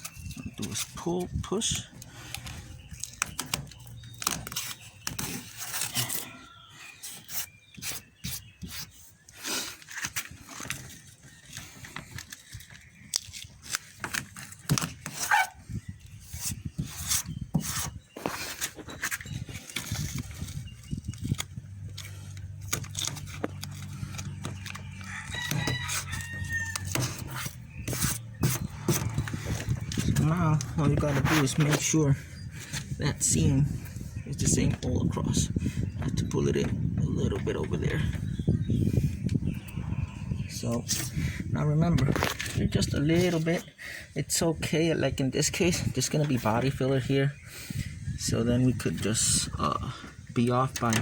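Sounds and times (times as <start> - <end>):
rooster crowing: 25.0 - 27.0.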